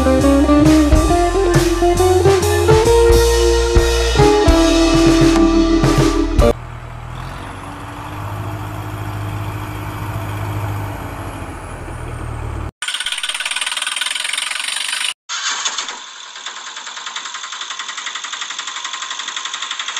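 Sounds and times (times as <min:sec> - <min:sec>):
bright rattling engine: 0:06.5 - 0:19.9
low engine idle: 0:06.6 - 0:12.7.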